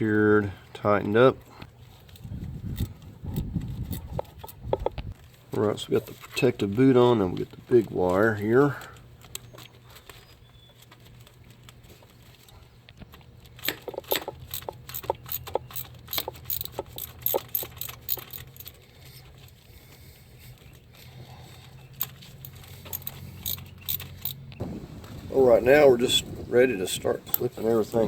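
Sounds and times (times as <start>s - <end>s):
hand tools clicking and rattling: 1.4s - 4.9s, 10.8s - 24.6s, 27.2s - 28.0s
steady low hum: 11.0s - 28.0s.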